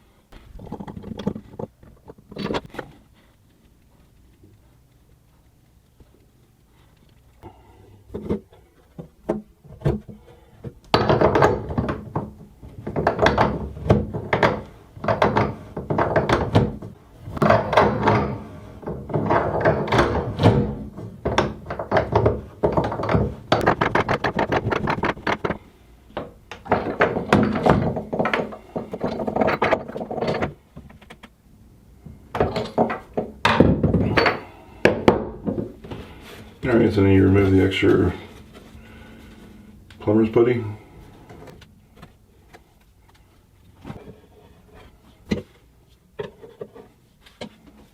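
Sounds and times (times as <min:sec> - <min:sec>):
hand tools clicking and knocking: 0:00.4 - 0:31.4, 0:32.3 - 0:38.4.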